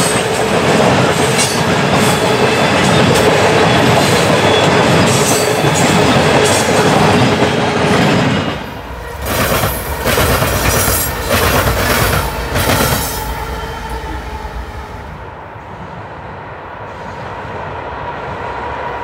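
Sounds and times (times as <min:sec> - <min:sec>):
wheels clacking over rail joints: 0:00.0 - 0:14.0
diesel locomotive rumble: 0:00.0 - 0:15.6
train wheels rolling on rails: 0:00.0 - 0:19.0.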